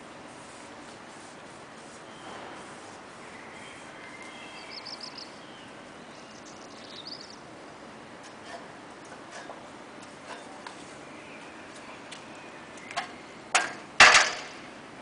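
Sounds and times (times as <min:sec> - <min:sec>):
outdoor background noise: 0:00.0 - 0:15.0
small bird trilling: 0:03.7 - 0:07.4.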